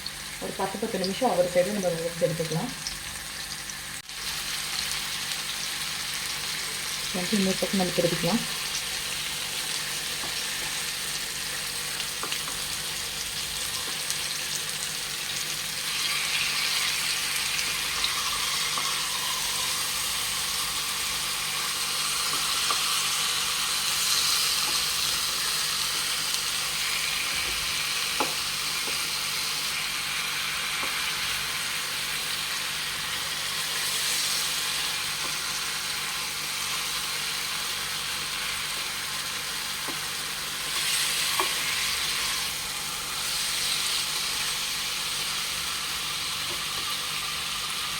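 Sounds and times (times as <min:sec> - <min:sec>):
chicken sizzling in a pan: 0:00.0 - 0:47.9.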